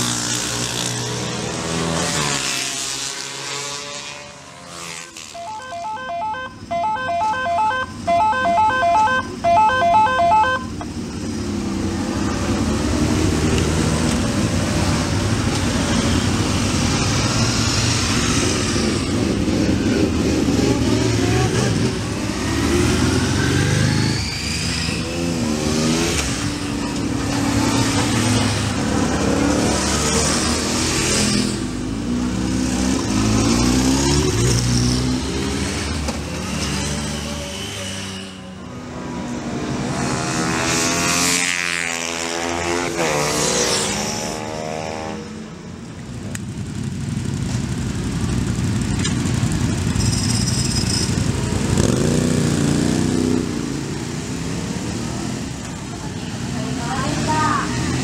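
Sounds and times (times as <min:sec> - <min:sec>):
motorcycle engines revving: 0:00.0 - 0:58.0
rapid electronic beeping: 0:05.4 - 0:10.7.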